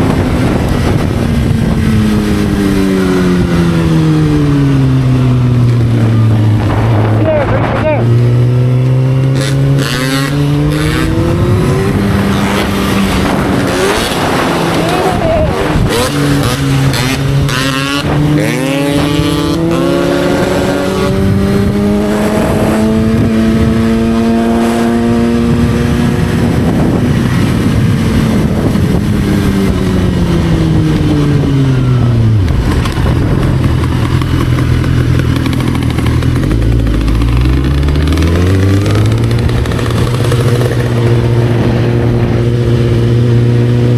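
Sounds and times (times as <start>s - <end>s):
motorcycle engine revving and idling: 0.0s - 43.9s.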